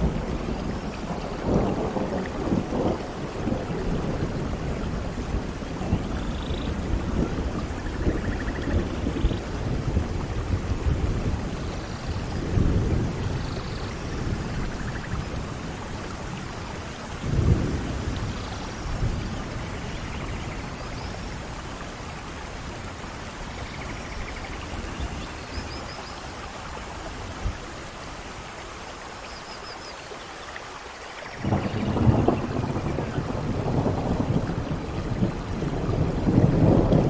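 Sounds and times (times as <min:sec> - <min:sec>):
thunder rumbling: 0:00.0 - 0:25.6, 0:31.3 - 0:37.0
heavy rain: 0:00.0 - 0:37.0.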